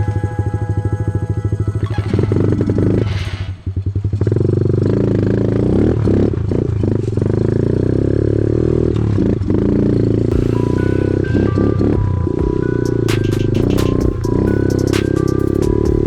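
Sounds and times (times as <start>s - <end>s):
small motorbike engine: 0.0s - 12.0s.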